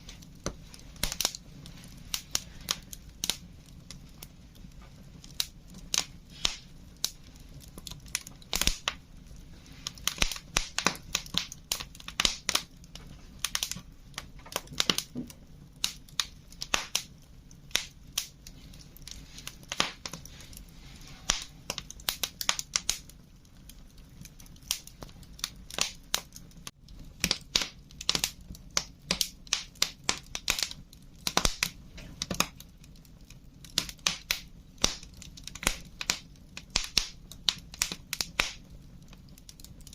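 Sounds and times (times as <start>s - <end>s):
faint steady hiss: 0.0s - 30.0s
wood fire crackling: 0.0s - 39.9s.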